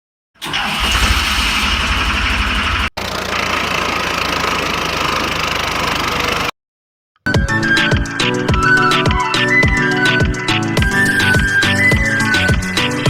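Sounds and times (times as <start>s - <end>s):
tractor engine idling: 0.4s - 6.5s.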